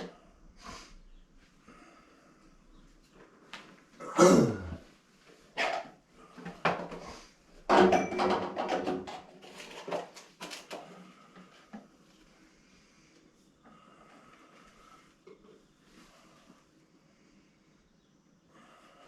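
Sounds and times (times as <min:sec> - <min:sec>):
hard objects clattering: 0:05.6 - 0:11.6.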